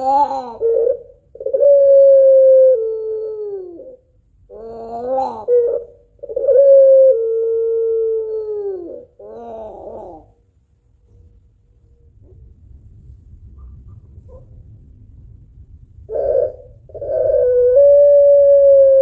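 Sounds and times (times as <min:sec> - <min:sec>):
dove cooing: 0:00.0 - 0:10.4, 0:16.1 - 0:19.0.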